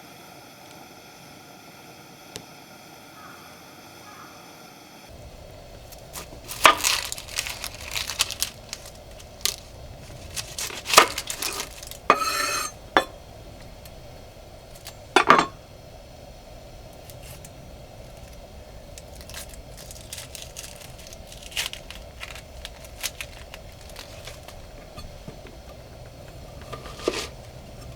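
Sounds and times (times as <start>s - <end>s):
wrapping crinkling and tearing: 5.8s - 12.2s, 18.1s - 25.0s, 26.5s - 27.9s
rough sound: 5.8s - 13.2s, 19.0s - 27.9s
utensils and dishes clinking: 5.9s - 13.2s, 14.8s - 15.6s, 19.2s - 27.9s.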